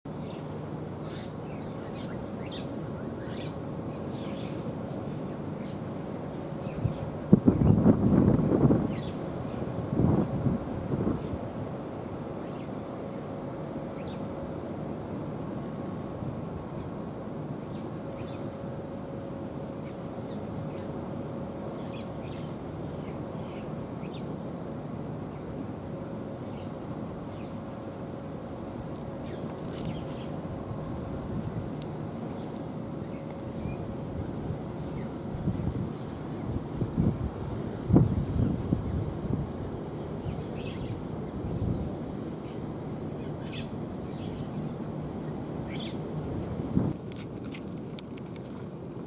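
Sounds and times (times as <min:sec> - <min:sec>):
faint humming tone: 0:00.1 - 0:49.0
small birds chirping: 0:29.1 - 0:30.4.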